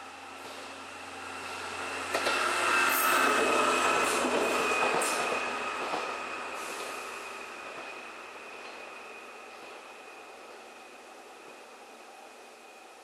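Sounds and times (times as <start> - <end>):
passenger train passing: 0.0 - 13.0
high wheel squeal: 1.4 - 10.4.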